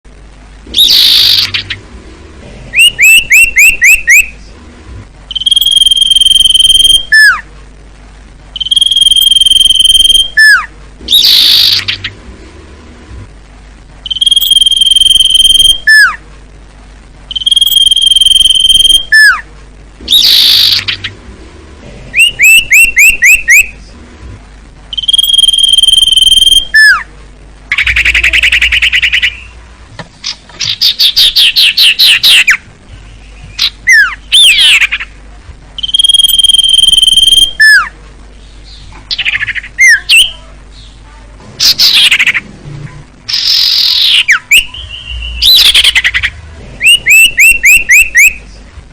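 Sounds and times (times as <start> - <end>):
bird whistling song: 0.7 - 1.8, 2.7 - 4.4, 5.3 - 7.4, 8.6 - 12.1, 14.0 - 16.2, 17.3 - 19.4, 20.1 - 21.1, 22.1 - 23.8, 24.9 - 27.1, 27.7 - 29.6, 30.2 - 35.1, 35.8 - 37.9, 38.6 - 40.9, 41.6 - 42.4, 43.3 - 48.6
buzzy rattling bird phrases: 27.7 - 29.6, 30.2 - 48.7.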